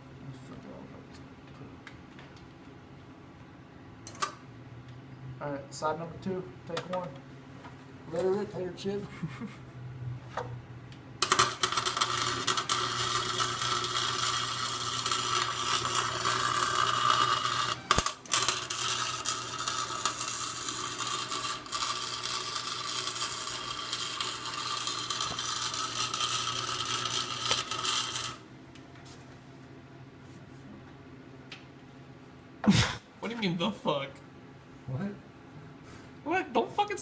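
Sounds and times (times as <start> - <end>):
welding machine hum: 11.1 - 28.9
electric arc crackle: 11.2 - 28.5.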